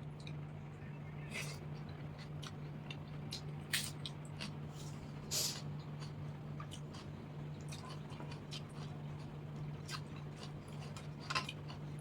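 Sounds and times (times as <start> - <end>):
steady low hum: 0.0 - 12.0
person chewing food: 2.2 - 12.0.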